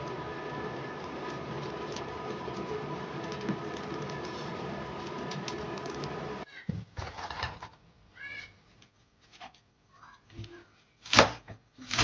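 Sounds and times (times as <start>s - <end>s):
machine-like whir with hum: 0.0s - 6.4s.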